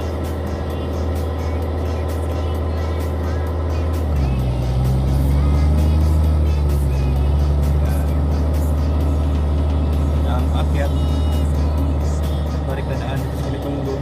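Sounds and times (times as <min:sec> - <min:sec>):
background music: 0:00.0 - 0:14.0
heavy vehicle engine running: 0:00.0 - 0:14.0.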